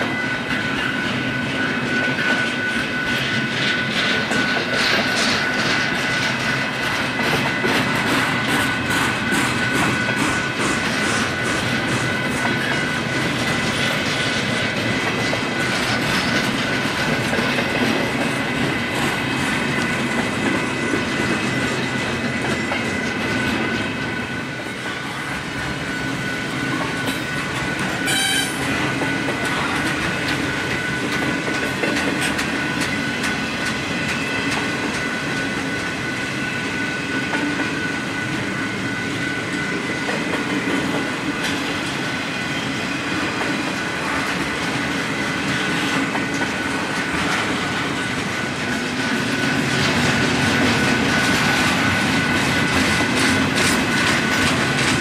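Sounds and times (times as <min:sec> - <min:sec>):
high-pitched wheel squeal: 0:28.0 - 0:28.8.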